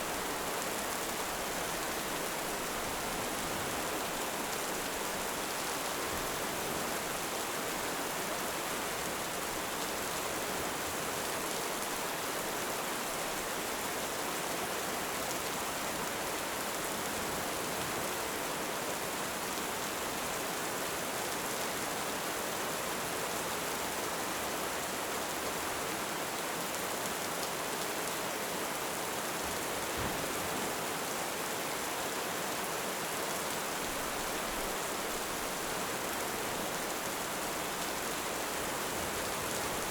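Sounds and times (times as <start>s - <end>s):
heavy rain falling: 33.8s - 39.9s.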